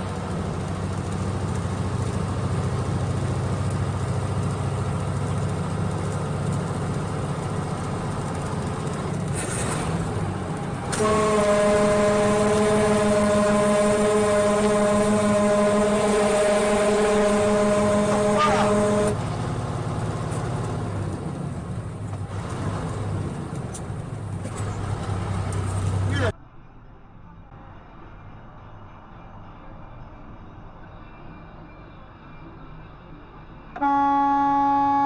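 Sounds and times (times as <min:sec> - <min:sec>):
vehicle driving drone: 0:00.0 - 0:33.8
vehicle horn blaring: 0:10.9 - 0:19.2, 0:33.8 - 0:35.0.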